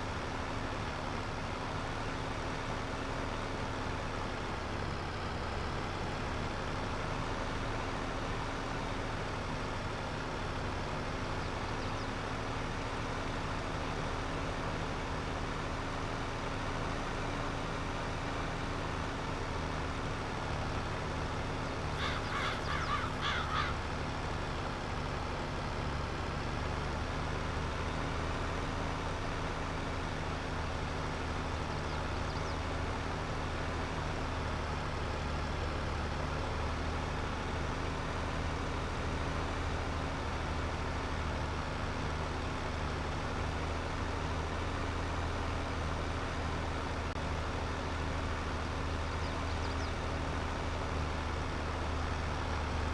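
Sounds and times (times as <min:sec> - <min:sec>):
tractor engine running: 0:00.0 - 0:52.9
bird calling: 0:22.0 - 0:23.8.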